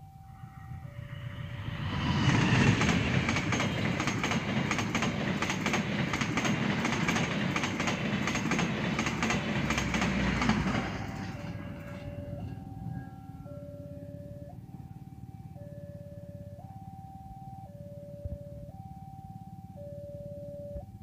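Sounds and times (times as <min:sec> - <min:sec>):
diesel locomotive passing: 0:00.0 - 0:16.6
train wheels clattering over rails: 0:01.3 - 0:13.0.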